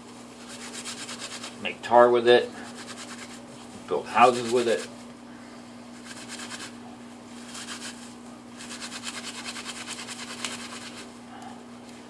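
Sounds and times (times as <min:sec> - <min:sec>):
bark fibers rubbed between hands: 0:00.0 - 0:01.6, 0:02.6 - 0:05.1, 0:05.9 - 0:11.2
washing machine humming: 0:00.0 - 0:12.0.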